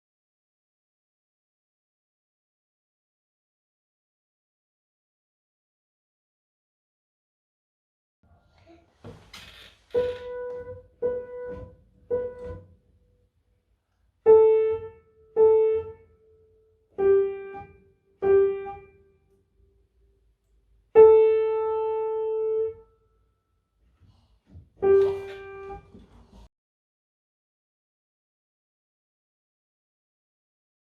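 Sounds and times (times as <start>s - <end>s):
slow piano melody: 9.9s - 13.0s, 14.2s - 20.0s, 20.9s - 23.1s, 24.8s - 26.5s.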